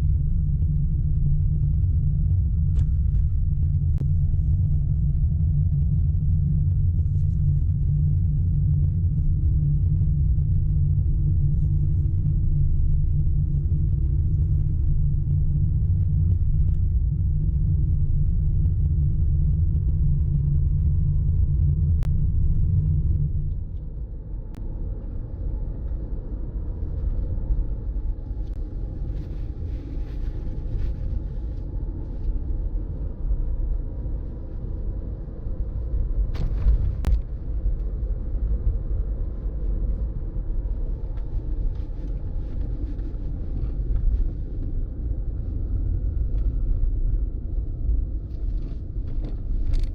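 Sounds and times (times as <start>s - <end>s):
road and wind noise: 16.2s - 49.9s.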